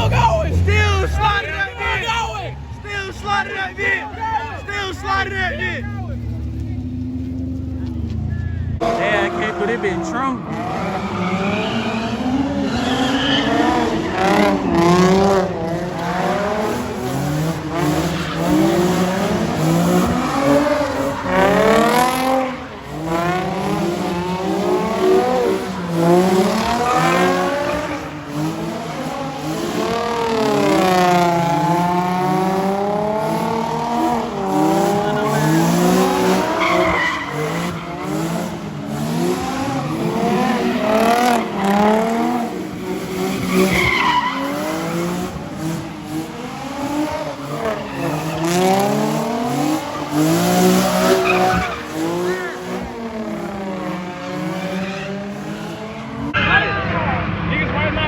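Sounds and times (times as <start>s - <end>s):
tyres squealing: 0.0s - 7.5s, 16.9s - 55.4s
car engine revving: 0.0s - 58.0s.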